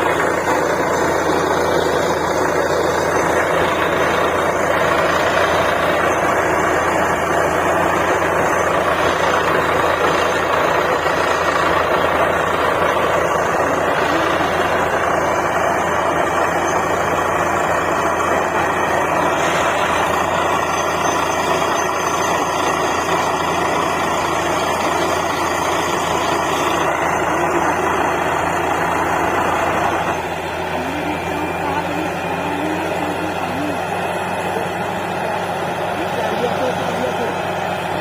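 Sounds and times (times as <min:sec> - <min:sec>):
diesel engine running: 0:00.0 - 0:38.0
rig drilling noise: 0:00.0 - 0:38.0.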